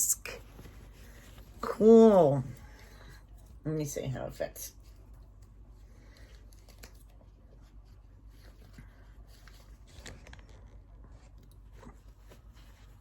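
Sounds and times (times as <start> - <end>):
low steady hum: 0.0 - 13.0
fabric mask rustling and clicks: 4.8 - 13.0.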